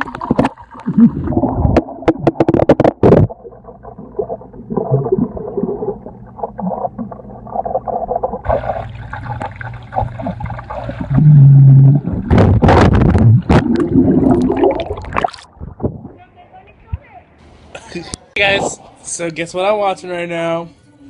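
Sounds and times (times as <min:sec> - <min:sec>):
underwater gurgling and bubbling: 0:00.0 - 0:16.1
water splashing: 0:00.0 - 0:16.2.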